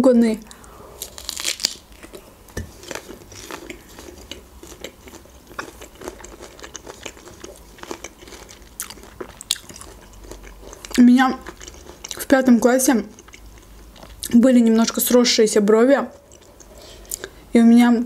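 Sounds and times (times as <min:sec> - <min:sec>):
chewing with wet mouth clicks: 0:02.8 - 0:14.4, 0:16.1 - 0:17.4.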